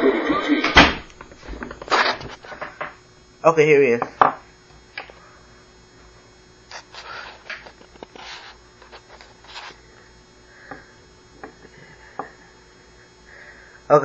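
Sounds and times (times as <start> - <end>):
electrical hum: 0.0 - 14.0
objects being handled: 6.7 - 9.8.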